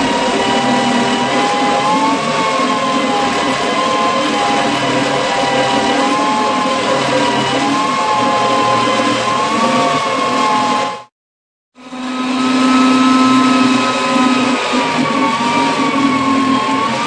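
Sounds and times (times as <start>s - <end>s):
power tool motor running: 0.0s - 11.0s, 11.8s - 17.0s.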